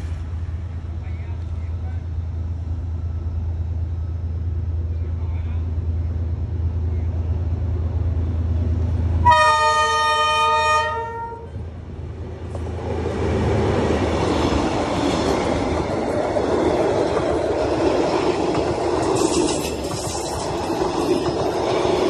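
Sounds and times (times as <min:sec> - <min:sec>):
train wheels rumbling on rails: 0:00.0 - 0:22.0
locomotive horn: 0:09.2 - 0:11.6.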